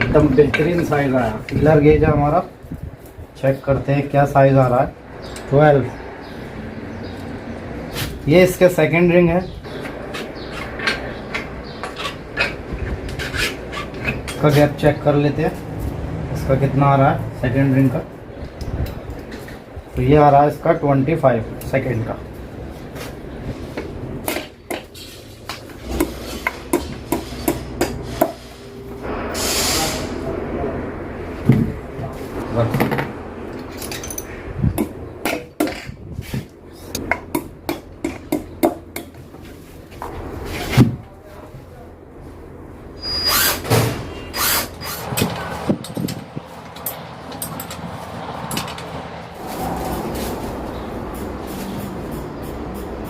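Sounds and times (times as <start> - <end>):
metal tools clanking: 9.7 - 15.0, 32.7 - 34.4, 44.3 - 49.0
metallic clicks of engine parts: 33.5 - 34.4, 45.2 - 49.0.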